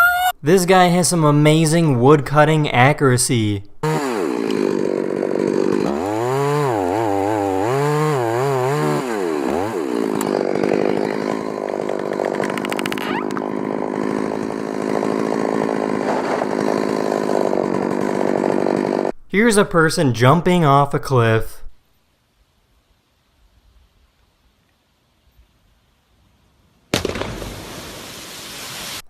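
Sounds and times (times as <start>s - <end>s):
chainsaw cutting wood: 3.8s - 19.2s, 27.0s - 29.0s.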